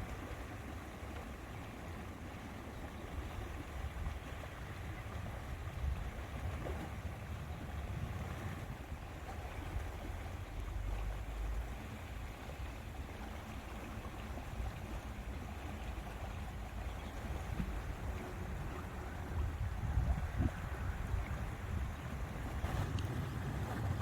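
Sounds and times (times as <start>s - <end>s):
wind and lake water hiss: 0.0s - 24.0s
wind buffeting microphone: 3.2s - 10.0s, 14.7s - 24.0s.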